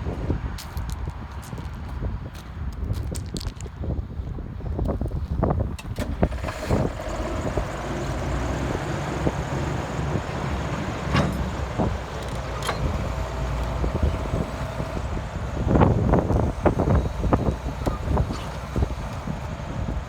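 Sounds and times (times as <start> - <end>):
excavator diesel engine running: 5.7 - 20.0.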